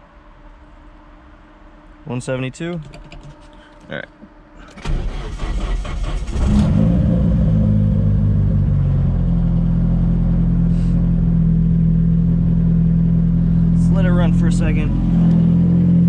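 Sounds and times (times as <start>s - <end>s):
car engine cranking and idling: 4.7s - 16.0s.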